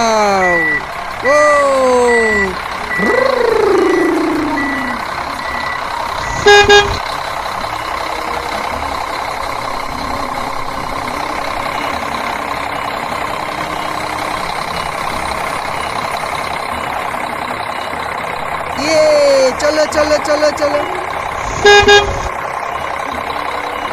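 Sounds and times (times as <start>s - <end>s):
toy truck horn toots: 6.2s - 7.0s, 20.9s - 22.3s.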